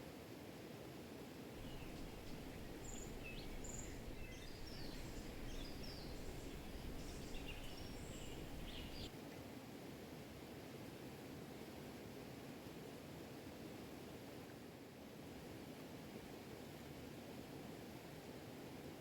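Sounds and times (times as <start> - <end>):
small birds chirping: 1.6 - 9.1.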